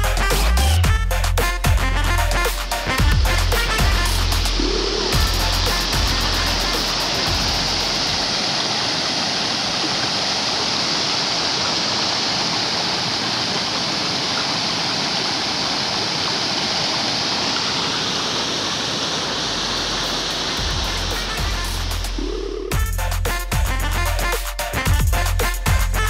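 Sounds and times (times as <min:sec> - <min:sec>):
background music with bass beat: 0:00.0 - 0:08.2, 0:20.6 - 0:26.0
waterfall roar: 0:02.6 - 0:22.3.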